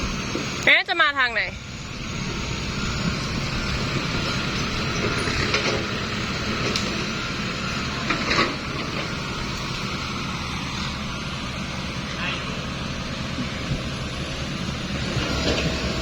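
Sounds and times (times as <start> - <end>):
dump truck engine running: 0.0 - 16.0.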